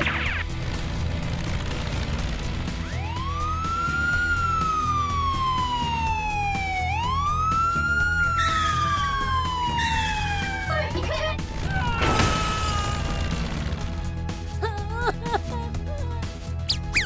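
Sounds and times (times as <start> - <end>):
background music: 0.0 - 17.0
police siren wailing: 2.8 - 13.8.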